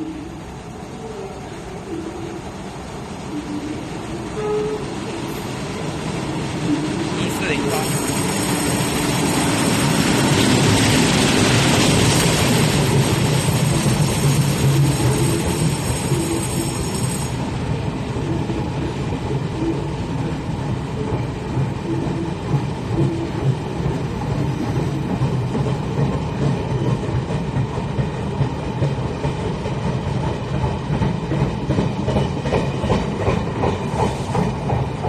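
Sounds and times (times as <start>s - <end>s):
train rumble: 0.0s - 35.0s
wheels clicking over rail joints: 7.2s - 17.6s.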